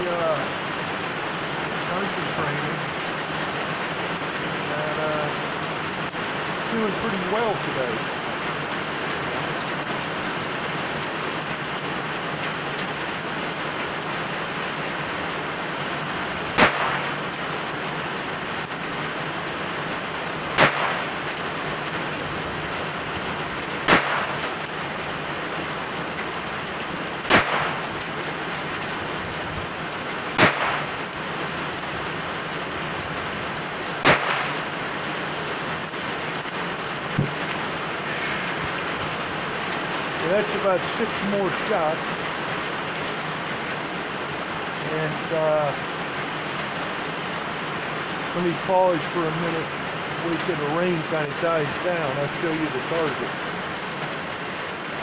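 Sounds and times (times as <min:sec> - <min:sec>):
steady rain falling: 0:00.0 - 0:55.0
revolver shots: 0:16.6 - 0:17.3, 0:20.6 - 0:21.2, 0:23.8 - 0:24.5, 0:27.3 - 0:27.9, 0:30.4 - 0:31.0, 0:34.0 - 0:34.6
faint tap: 0:37.2 - 0:37.4.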